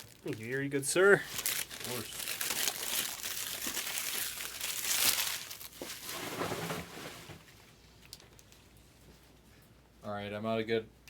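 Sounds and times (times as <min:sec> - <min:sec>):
card pack wrappers crinkling: 0:00.0 - 0:06.2.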